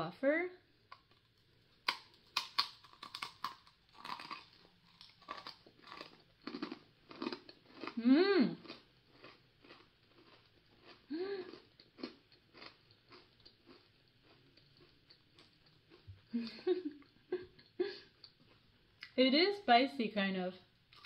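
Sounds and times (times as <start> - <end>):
crunching a crispy cracker: 0.9 - 8.0, 8.6 - 16.0
person humming: 8.0 - 8.6, 11.1 - 11.5
person murmuring: 8.0 - 8.6, 11.1 - 11.5.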